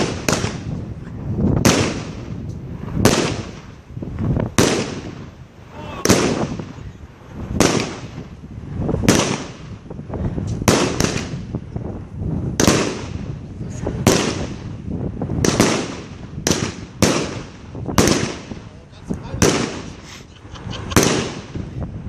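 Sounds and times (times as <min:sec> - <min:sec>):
firework bangs: 0:00.0 - 0:22.0.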